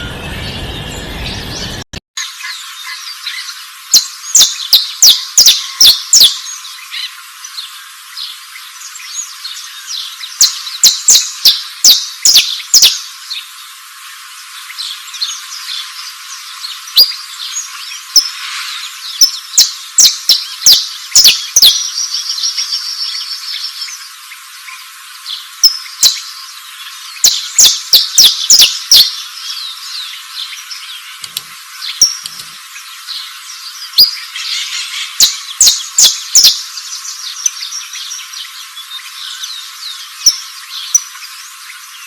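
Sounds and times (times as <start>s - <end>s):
bird chirping sharply: 0.0s - 1.8s, 27.2s - 29.1s
insect-like hiss: 2.2s - 42.0s.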